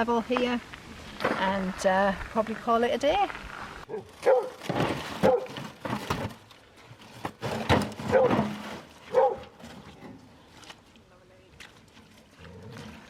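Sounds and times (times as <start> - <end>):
dog barking: 3.9 - 4.6, 5.2 - 5.6, 8.1 - 8.4, 9.1 - 9.4.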